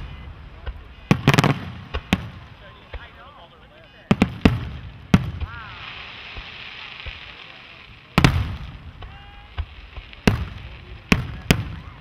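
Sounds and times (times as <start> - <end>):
faint steady crackle: 0.0 - 12.0.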